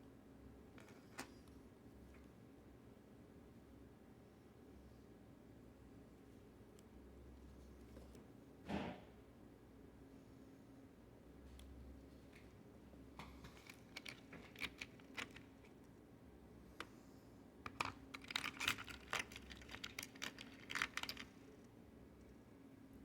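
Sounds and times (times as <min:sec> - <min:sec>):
plastic and metal parts clicking: 0:13.5 - 0:15.7, 0:17.7 - 0:21.4.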